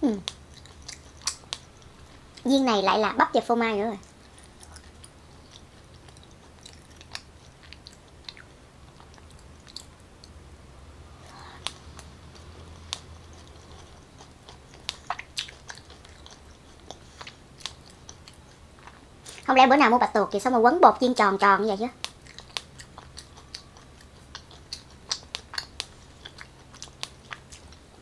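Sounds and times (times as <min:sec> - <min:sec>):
person chewing soft food: 0:00.2 - 0:02.5, 0:04.0 - 0:10.4, 0:11.0 - 0:19.5, 0:22.0 - 0:28.0
wet mouth clicks and smacks: 0:22.0 - 0:27.8.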